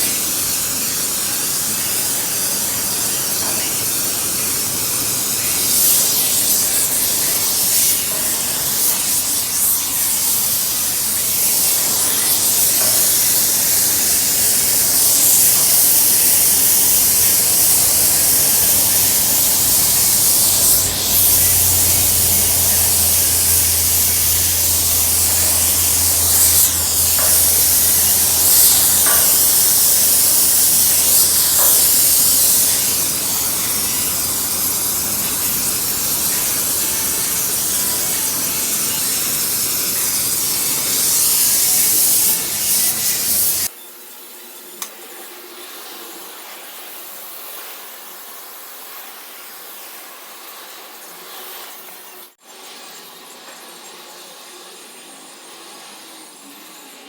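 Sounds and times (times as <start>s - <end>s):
welding hiss: 0.0s - 43.7s
low hum: 17.3s - 31.6s.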